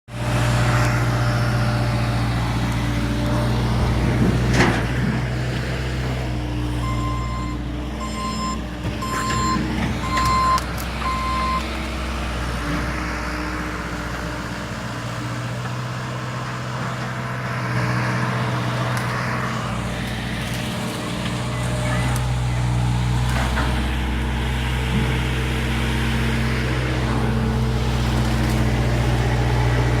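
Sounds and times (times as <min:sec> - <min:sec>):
diesel engine running: 0:00.1 - 0:30.0
reversing alarm beeping: 0:06.8 - 0:11.7.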